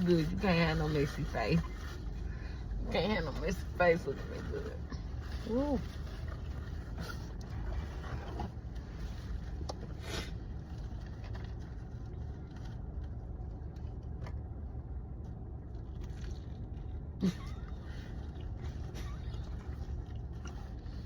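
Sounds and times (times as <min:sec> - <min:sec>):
steady low hum: 0:00.0 - 0:21.0
chewing crunches: 0:15.6 - 0:21.0.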